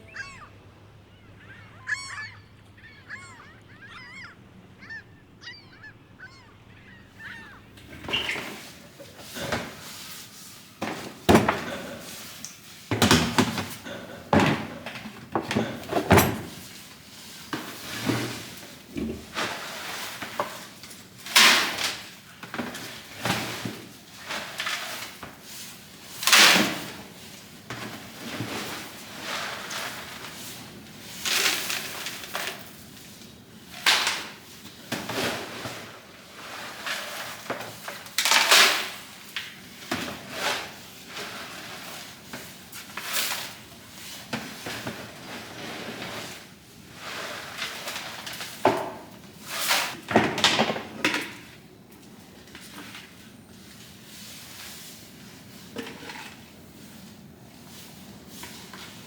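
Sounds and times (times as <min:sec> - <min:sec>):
faint high chirping: 0:00.0 - 0:08.4
fowl honking calls: 0:00.0 - 0:08.5.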